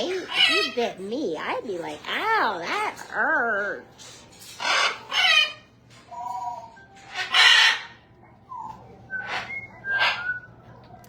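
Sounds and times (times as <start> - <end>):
parrots squawking: 0.0 - 10.5.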